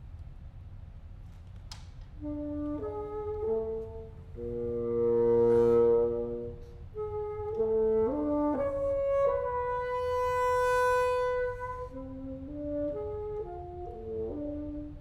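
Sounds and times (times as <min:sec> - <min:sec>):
bassoon and chamber ensemble: 0:02.2 - 0:15.0.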